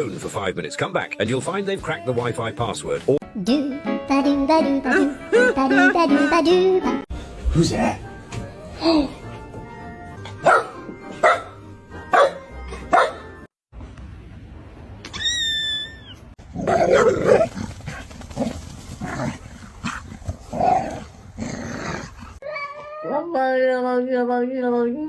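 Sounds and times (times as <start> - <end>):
dog barking and yapping: 10.3 - 13.3, 16.5 - 21.1.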